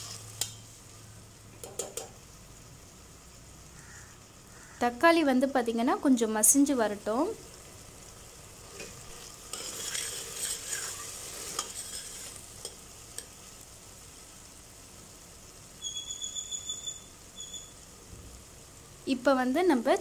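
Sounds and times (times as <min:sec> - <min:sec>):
onion and tomato sizzling in oil: 0:00.0 - 0:20.0
spoon scraping metal pot: 0:08.7 - 0:12.8.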